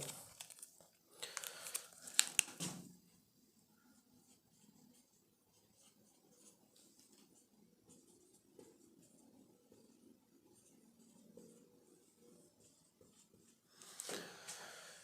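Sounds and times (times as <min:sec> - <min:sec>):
rustling: 0:00.0 - 0:03.2.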